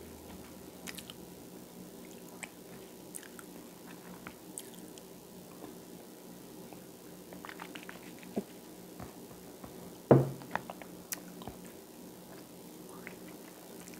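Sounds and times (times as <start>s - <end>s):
faint steady hum: 0.0s - 13.9s
person chewing toast: 0.8s - 1.2s, 2.0s - 5.8s, 6.7s - 9.3s, 10.6s - 13.9s
loud thump: 10.1s - 10.4s.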